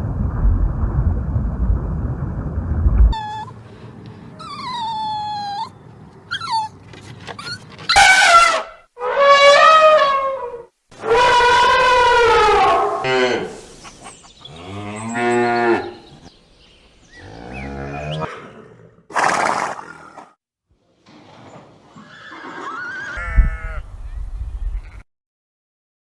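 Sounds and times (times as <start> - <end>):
low rumbling: 0.0 - 6.1
dog whining and howling: 3.1 - 3.6, 4.4 - 6.8
animal lowing calls: 3.1 - 8.6, 22.2 - 25.0.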